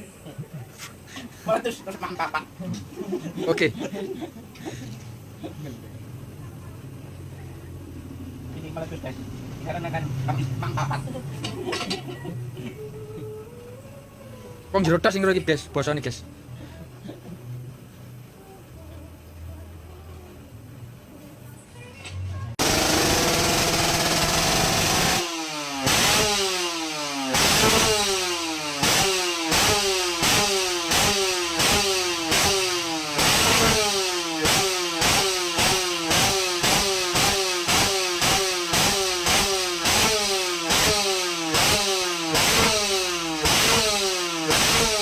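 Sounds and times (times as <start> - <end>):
two-stroke motorcycle engine revving: 22.6 - 45.0.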